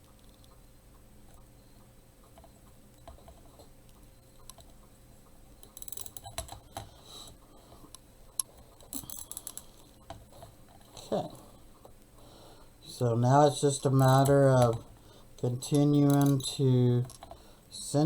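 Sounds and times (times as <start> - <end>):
plastic clicking and rattling: 16.0 - 17.4.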